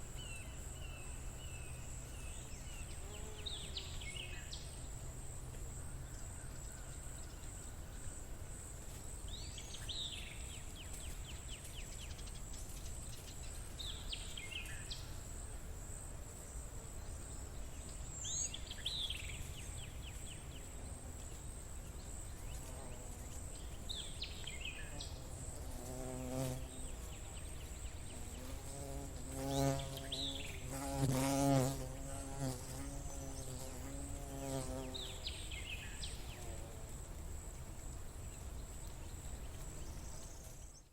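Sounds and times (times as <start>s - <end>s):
fly buzzing: 25.2s - 27.2s, 28.1s - 35.3s.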